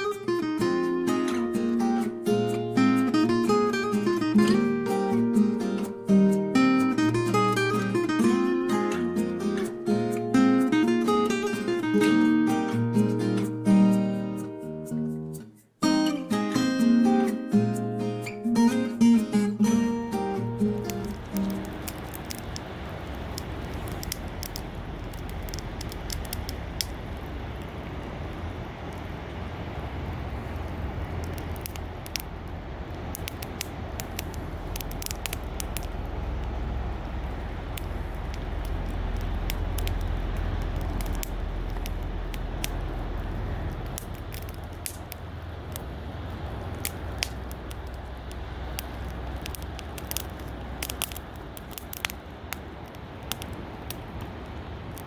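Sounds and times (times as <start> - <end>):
steady low rumble: 19.4 - 55.0
campfire crackling and popping: 19.6 - 55.0.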